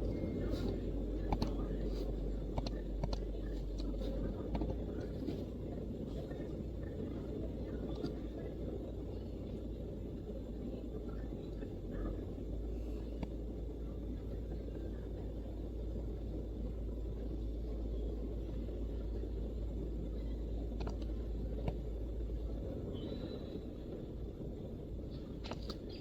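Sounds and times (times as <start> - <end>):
low background rumble: 0.0 - 26.0
faint clicks: 0.6 - 1.8, 2.4 - 5.4, 20.7 - 21.8.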